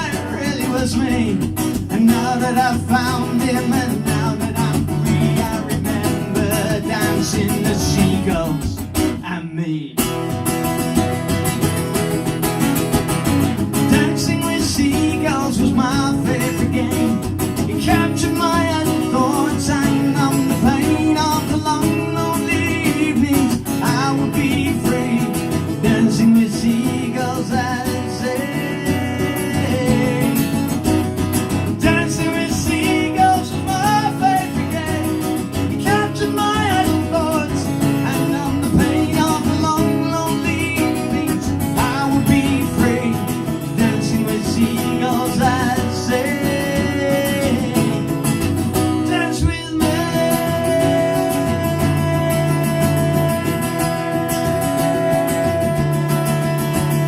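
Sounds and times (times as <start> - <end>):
folk song on acoustic guitar: 0.0 - 57.0.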